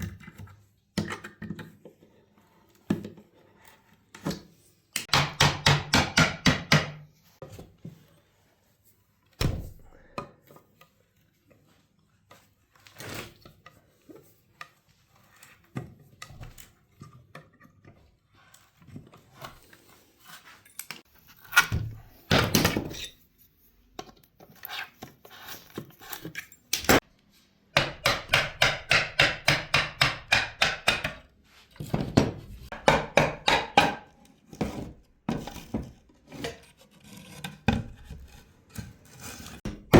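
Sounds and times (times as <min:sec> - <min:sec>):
knocks and scrapes: 0:34.4 - 0:39.9.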